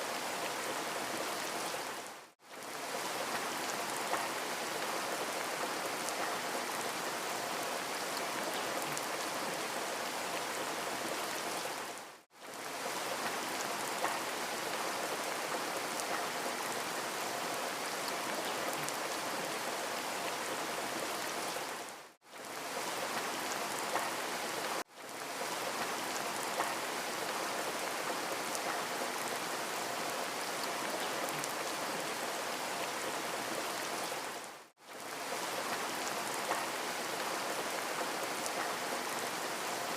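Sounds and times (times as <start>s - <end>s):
steady rain hiss: 0.0s - 39.9s
raindrop ticks: 26.6s - 26.8s.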